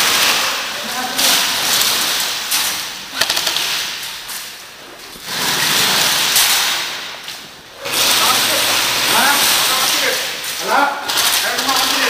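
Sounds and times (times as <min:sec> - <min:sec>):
airsoft guns firing rapid bursts: 0:03.1 - 0:04.0, 0:11.1 - 0:12.0.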